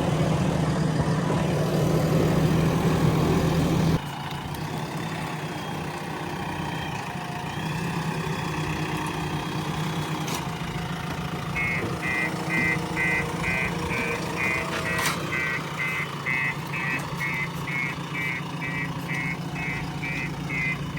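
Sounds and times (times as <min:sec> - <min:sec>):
diesel engine running: 0:00.0 - 0:20.9
reversing alarm beeping: 0:11.5 - 0:20.9.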